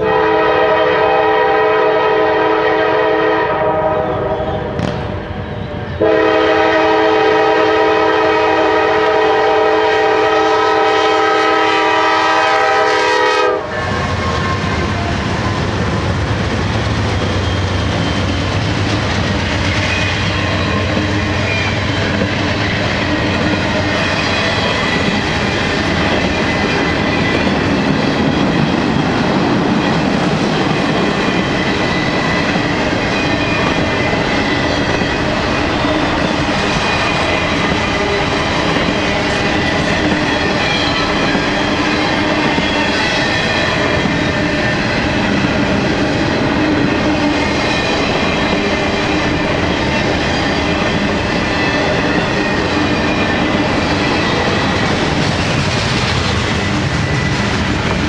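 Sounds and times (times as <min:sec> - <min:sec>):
locomotive air horn chord: 0:00.0 - 0:04.8, 0:06.0 - 0:14.7
diesel locomotives rumbling: 0:00.0 - 0:58.0
train wheel clatter on rails: 0:07.2 - 0:58.0.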